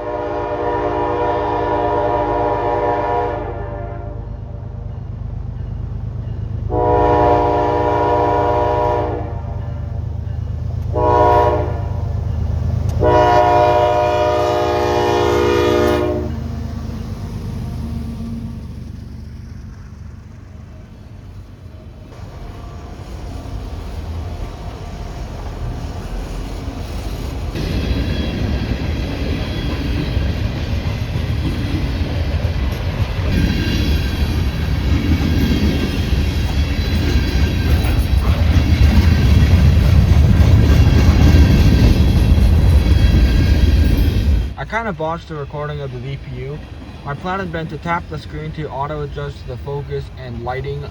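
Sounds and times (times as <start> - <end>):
locomotive air horn blasts: 0.0 - 4.4, 6.7 - 9.6, 10.9 - 12.1, 13.0 - 16.5
low train rumble: 0.0 - 50.9.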